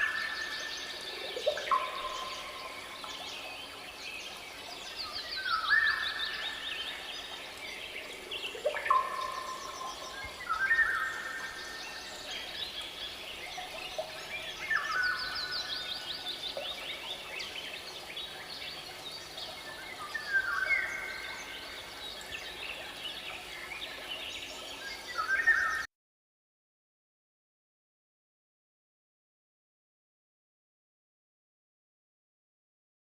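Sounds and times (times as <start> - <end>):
faint steady background noise: 0.0 - 25.7.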